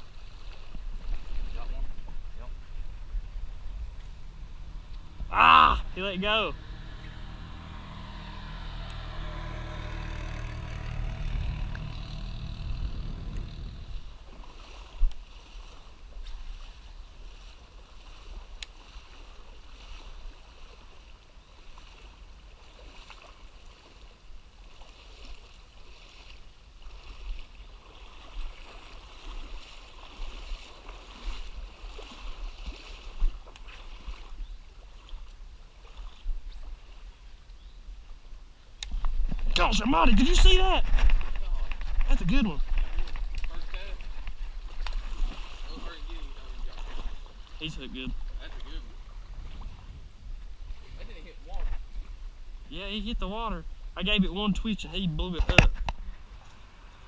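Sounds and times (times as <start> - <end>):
creek running water: 0.0 - 57.0
low rumble: 1.9 - 14.4.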